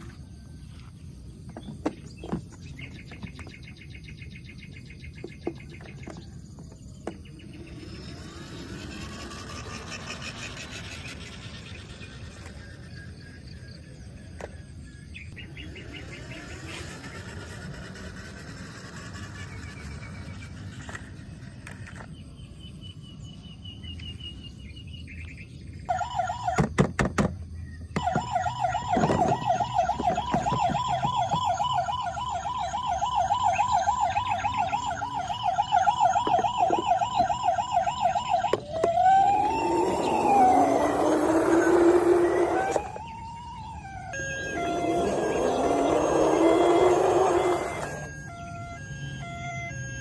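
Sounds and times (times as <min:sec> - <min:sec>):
toy vehicle electronic siren: 0:06.0 - 0:13.6, 0:15.5 - 0:22.1, 0:25.9 - 0:26.8, 0:28.0 - 0:50.0.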